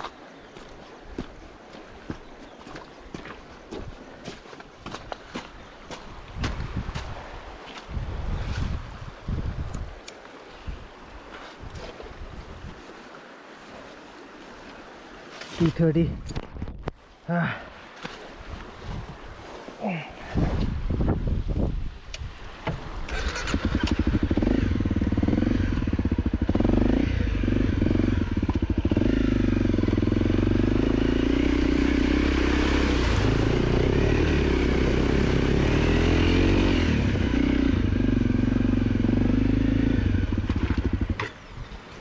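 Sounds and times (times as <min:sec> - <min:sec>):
dirt bike engine revving: 0:23.1 - 0:41.3.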